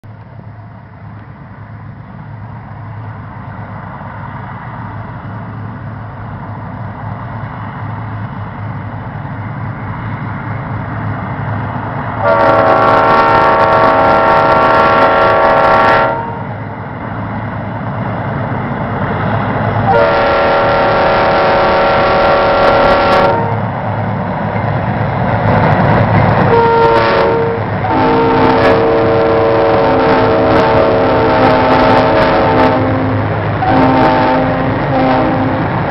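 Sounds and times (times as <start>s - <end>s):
diesel locomotive engines: 0.0s - 35.9s
train air horn blasts: 12.2s - 16.5s, 19.8s - 23.7s, 26.5s - 35.9s.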